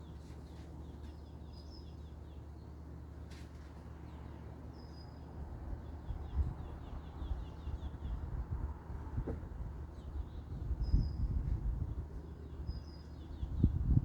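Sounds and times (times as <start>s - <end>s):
small birds chirping: 12.2s - 14.0s.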